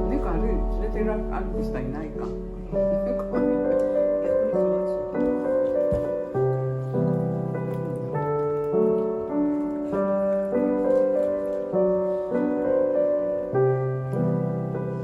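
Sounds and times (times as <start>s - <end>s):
sustained bass note: 0.0s - 4.2s
soft piano chords: 0.0s - 15.0s.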